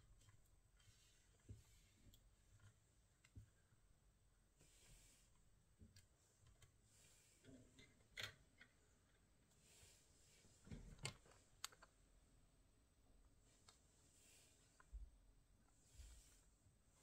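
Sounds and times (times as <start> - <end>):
faint clicks and taps: 0.0 - 3.7, 5.8 - 6.8.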